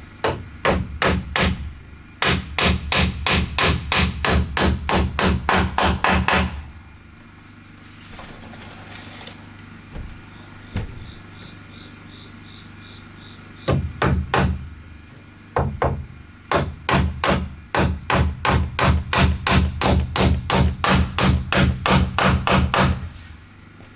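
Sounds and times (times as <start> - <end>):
hammer striking wood: 0.2 - 1.6, 2.2 - 6.6, 13.7 - 14.7, 15.6 - 23.0.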